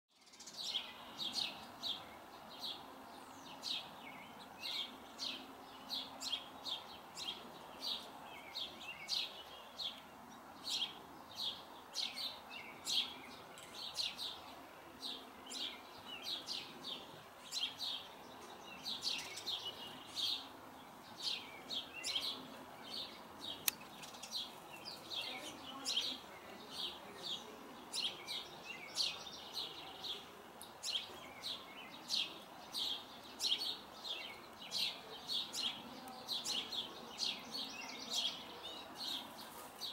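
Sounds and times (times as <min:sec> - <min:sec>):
small birds chirping: 0:00.1 - 0:39.9
sharp click: 0:23.6 - 0:24.1.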